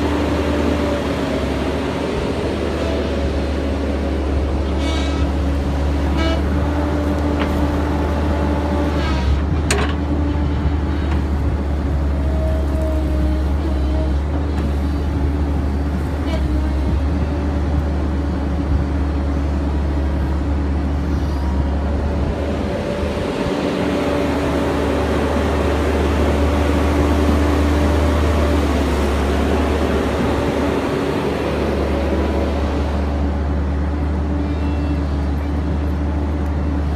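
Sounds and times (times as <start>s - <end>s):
excavator diesel engine droning: 0.0s - 36.9s.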